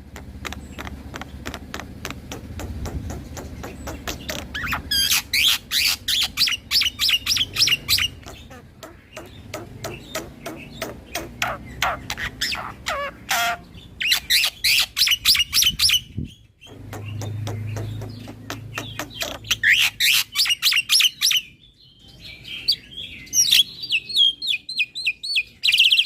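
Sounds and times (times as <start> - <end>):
soft bird ticking notes: 0.0 - 5.1, 6.2 - 13.6, 16.6 - 19.7
starling chattering and whistling: 3.2 - 16.1.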